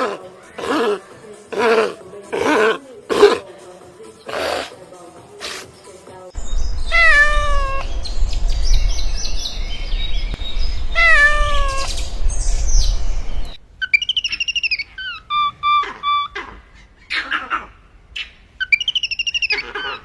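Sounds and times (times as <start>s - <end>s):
low background rumble: 6.4s - 13.8s
high chirping calls: 6.4s - 17.4s, 18.2s - 20.0s
cat meowing: 6.9s - 7.9s, 11.0s - 11.9s.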